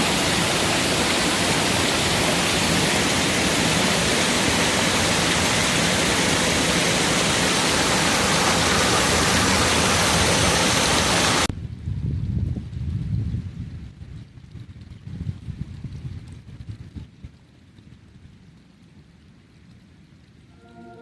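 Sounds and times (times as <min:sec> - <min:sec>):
waterfall rushing: 0:00.0 - 0:11.5.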